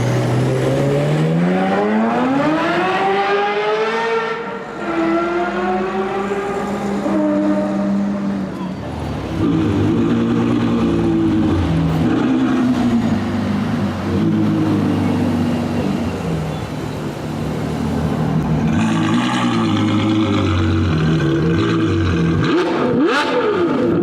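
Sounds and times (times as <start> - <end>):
sports car engine revving: 18.6 - 24.0.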